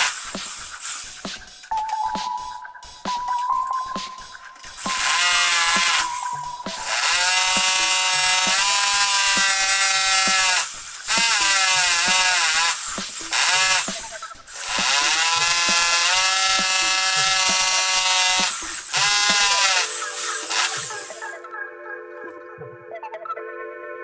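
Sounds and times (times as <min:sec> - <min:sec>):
electric drill whining: 0:00.0 - 0:01.7, 0:04.6 - 0:21.4.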